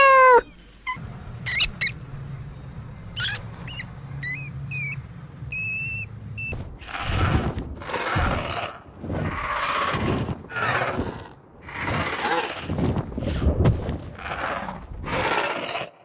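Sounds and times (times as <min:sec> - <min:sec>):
horse calling: 0:00.0 - 0:00.5.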